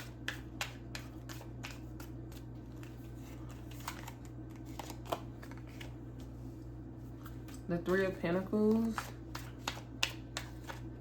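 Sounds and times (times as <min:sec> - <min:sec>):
steady low hum: 0:00.0 - 0:11.0
cards being shuffled: 0:00.2 - 0:06.3, 0:08.8 - 0:11.0.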